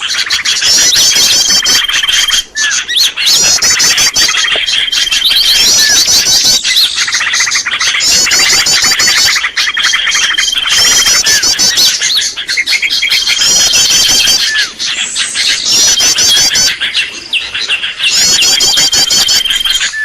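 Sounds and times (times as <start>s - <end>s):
small birds chirping and twittering: 0.0s - 20.0s.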